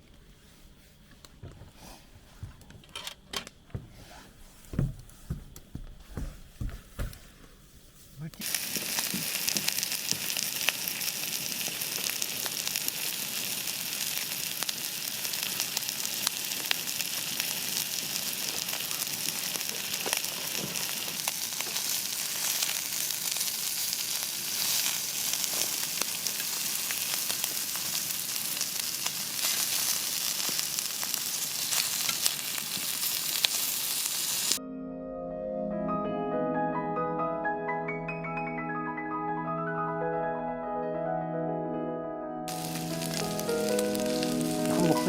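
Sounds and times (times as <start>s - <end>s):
oil popping and spitting: 8.4s - 10.4s
food frying sizzle: 8.4s - 34.6s, 42.5s - 45.0s.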